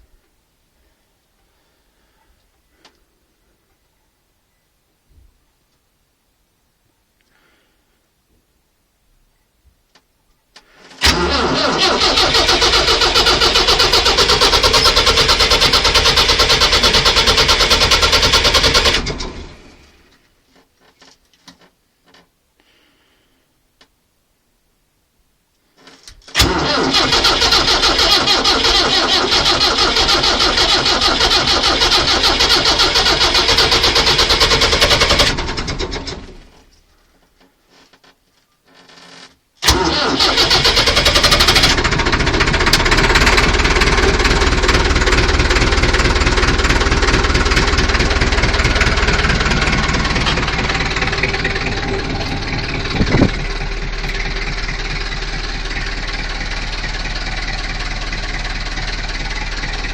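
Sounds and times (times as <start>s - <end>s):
tractor engine cranking: 10.8s - 20.2s, 25.8s - 36.8s, 37.7s - 59.9s
diesel tractor engine running: 11.0s - 20.1s, 26.4s - 36.6s, 39.6s - 59.9s.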